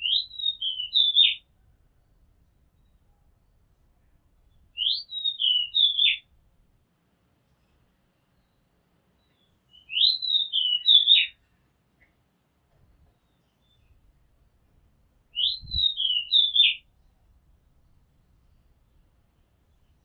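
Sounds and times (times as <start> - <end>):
bird singing whistled phrases: 0.0 - 1.4, 4.8 - 6.2, 9.7 - 11.4, 15.4 - 16.8.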